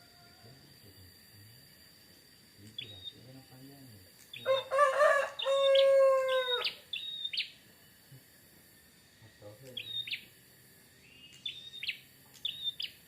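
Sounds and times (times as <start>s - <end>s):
rooster crowing: 4.4s - 6.9s
bird short high chirps: 6.5s - 7.5s, 9.8s - 10.2s, 11.1s - 13.0s.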